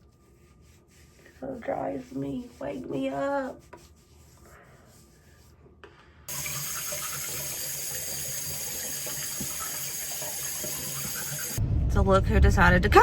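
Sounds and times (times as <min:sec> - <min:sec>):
water running into a sink: 0:06.3 - 0:11.6.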